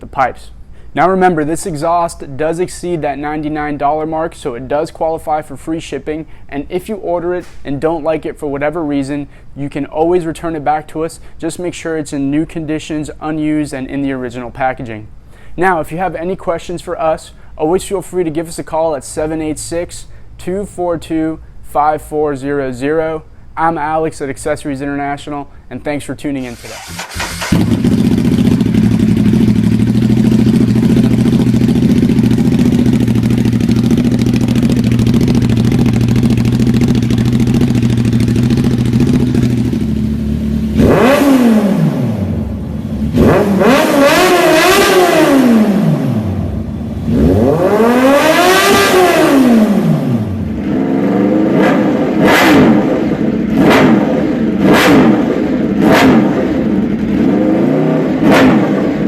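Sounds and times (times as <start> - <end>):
motorcycle engine idling and revving: 26.6 - 59.0.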